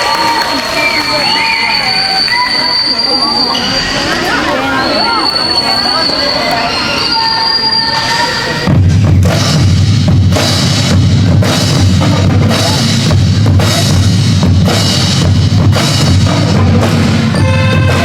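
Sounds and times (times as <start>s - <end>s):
bass drums pounding: 8.6s - 18.0s.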